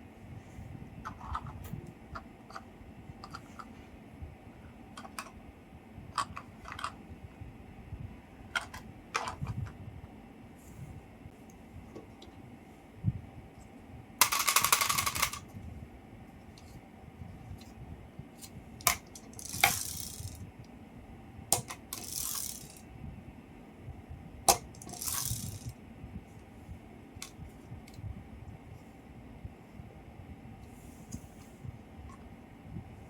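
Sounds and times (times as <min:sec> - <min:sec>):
small hard objects rattling: 0:19.2 - 0:20.4, 0:24.8 - 0:25.7.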